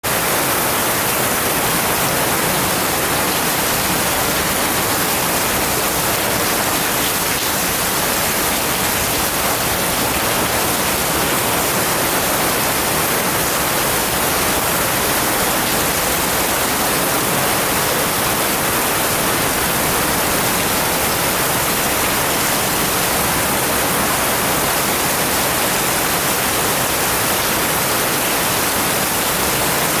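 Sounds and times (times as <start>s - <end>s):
heavy rain in woods: 0.0s - 30.0s.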